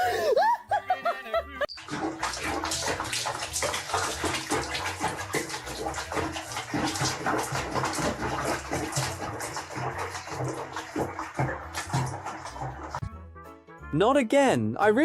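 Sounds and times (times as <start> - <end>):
water running and splashing: 1.7 - 13.0.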